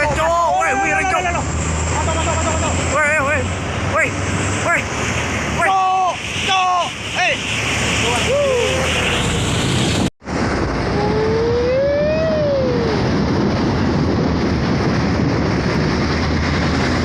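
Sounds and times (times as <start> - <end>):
drawn-out rising and falling tone: 1.2 - 13.9.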